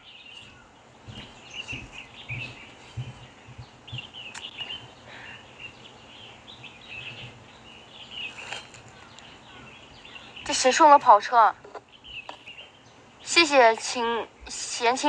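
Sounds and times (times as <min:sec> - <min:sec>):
small birds chirping: 0:00.0 - 0:15.0
soft low thumps: 0:00.5 - 0:05.0.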